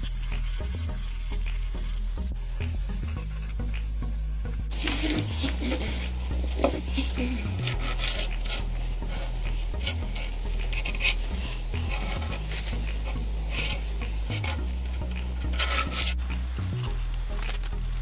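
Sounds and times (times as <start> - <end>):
background music with bass line: 0.0 - 18.0
pen scratching on paper: 4.8 - 14.6, 15.4 - 16.2
metal head scraping on paper: 4.8 - 16.4.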